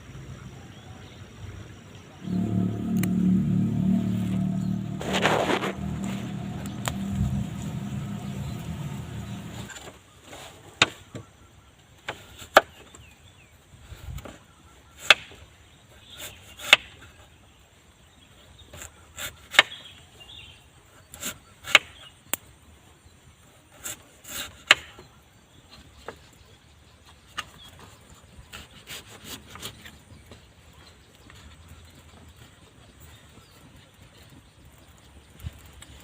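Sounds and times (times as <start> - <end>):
faint rubbing: 2.2 - 9.7.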